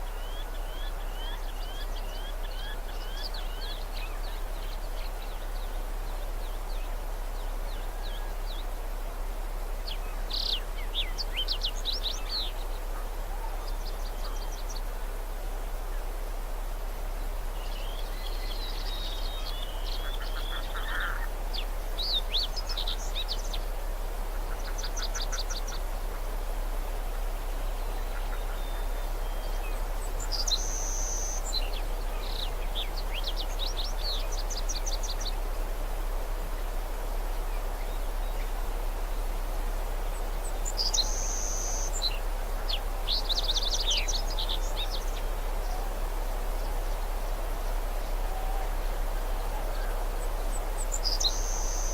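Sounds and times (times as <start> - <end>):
background noise: 0.0 - 51.9.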